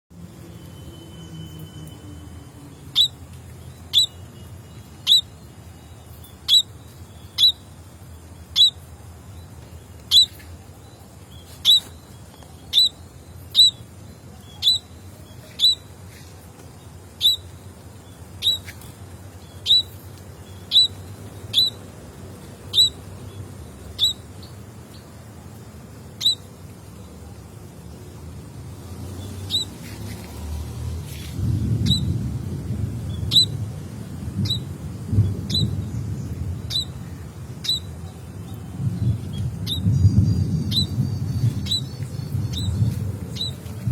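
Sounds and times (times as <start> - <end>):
small bird chirping: 2.8 - 16.0, 16.8 - 21.8, 22.7 - 25.1, 26.2 - 26.5, 29.2 - 30.3, 31.1 - 32.2, 33.1 - 33.6, 34.4 - 43.8.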